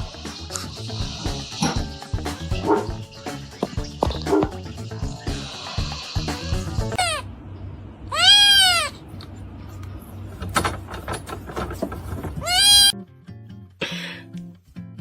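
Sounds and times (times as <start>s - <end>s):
animal long arching cries: 8.1s - 9.0s.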